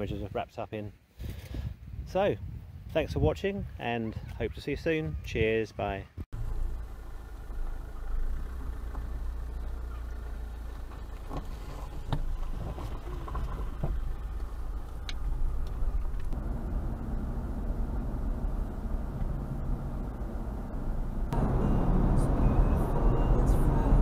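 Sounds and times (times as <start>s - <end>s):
car engine rumbling: 6.3s - 24.0s.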